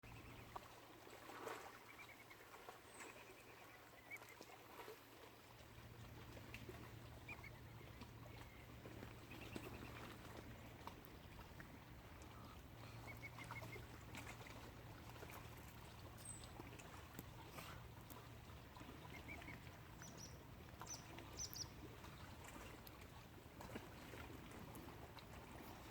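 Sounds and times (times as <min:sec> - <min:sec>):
faint waterfowl calling: 0:06.7 - 0:22.8.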